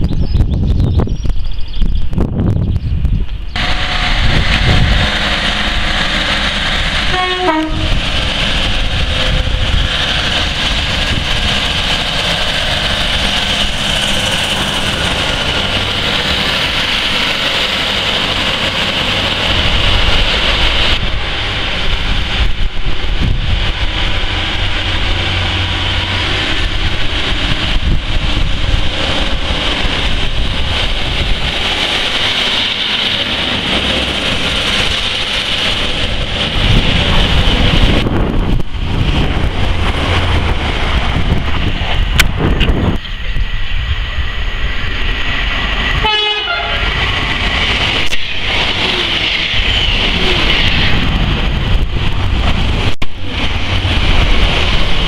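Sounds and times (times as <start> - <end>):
train wheels rumbling over rails: 0.0 - 55.0
train horn blast: 3.6 - 6.0, 6.9 - 8.1, 46.0 - 47.0.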